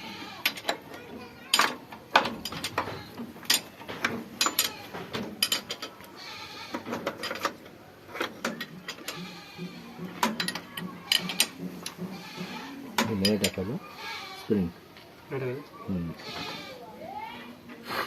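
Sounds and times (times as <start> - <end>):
metal tools clinking: 0.4 - 6.0, 6.9 - 9.6, 10.2 - 12.0, 13.0 - 13.6.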